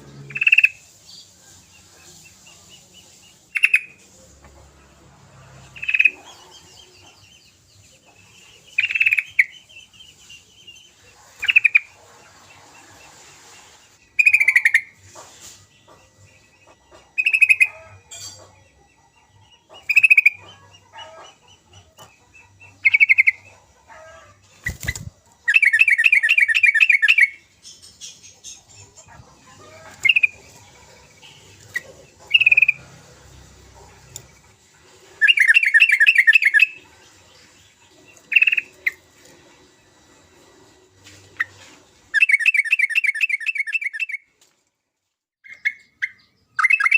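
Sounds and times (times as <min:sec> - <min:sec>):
bulbul calling: 0:14.2 - 0:14.9, 0:31.2 - 0:32.8, 0:35.2 - 0:36.8.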